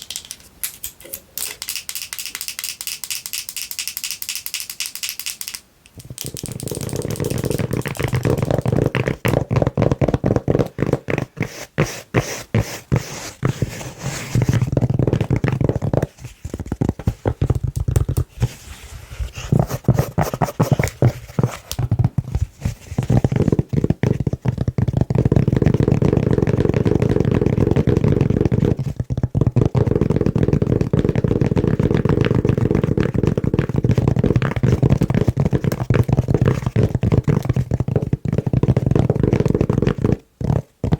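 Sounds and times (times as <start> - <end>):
fingernails scratching velvet lid: 6.6 - 17.2.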